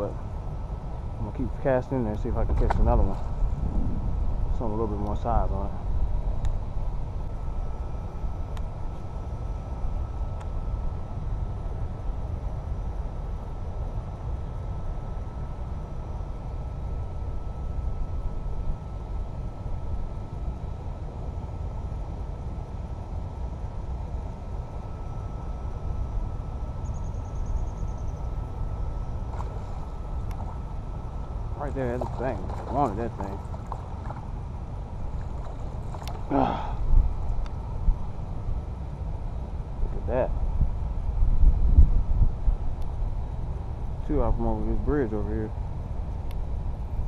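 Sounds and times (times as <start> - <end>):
wind buffeting microphone: 2.2 - 8.0, 40.4 - 43.6.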